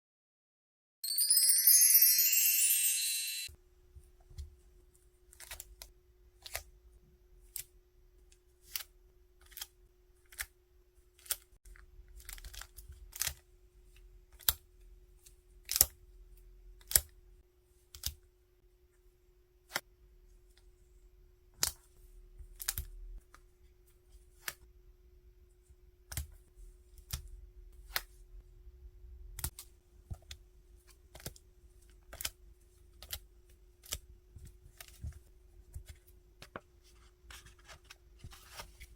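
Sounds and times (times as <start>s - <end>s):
plastic and paper rustling: 36.5s - 38.9s.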